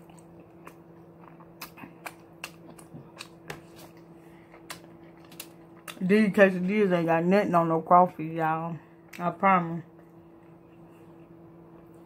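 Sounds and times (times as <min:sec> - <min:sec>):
chewing with crisp clicks: 0:00.0 - 0:06.0
faint steady hum: 0:00.0 - 0:12.0.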